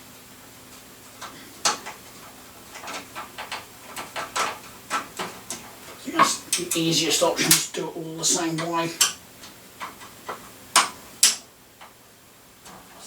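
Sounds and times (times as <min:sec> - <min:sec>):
hard parts clicking in computer case: 0:01.1 - 0:07.7, 0:08.4 - 0:12.0.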